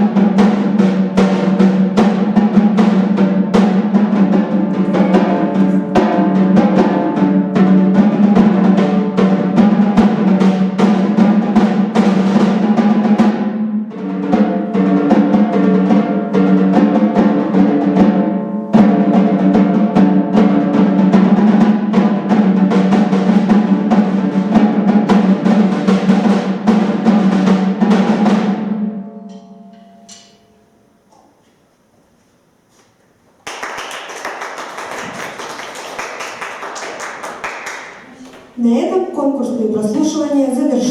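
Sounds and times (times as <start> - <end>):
rapid drum rolls: 0.0 - 28.8
steady pitched ring: 3.6 - 9.2, 29.0 - 31.0.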